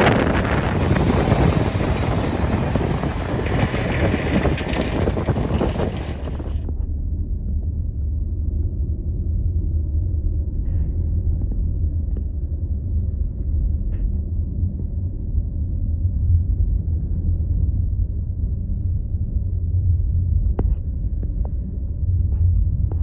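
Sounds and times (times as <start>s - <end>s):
car road and engine rumble: 0.0s - 6.6s.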